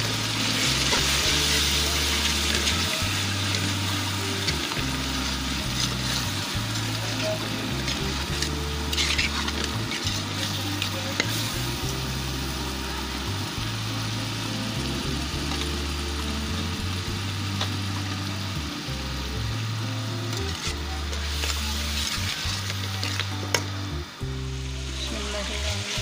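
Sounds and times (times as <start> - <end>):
vegetables sizzling in hot oil: 0.0 - 26.0
metal spoon scraping a pan: 0.6 - 11.6, 20.3 - 23.7.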